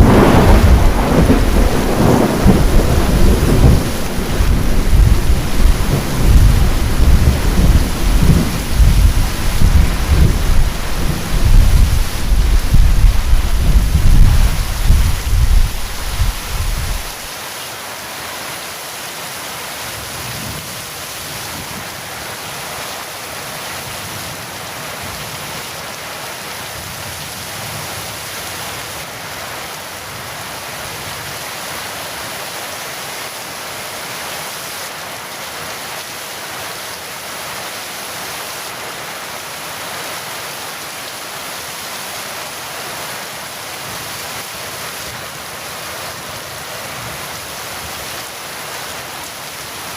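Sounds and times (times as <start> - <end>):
thunder rumble: 0.0 - 17.3
heavy rain falling: 0.0 - 49.9.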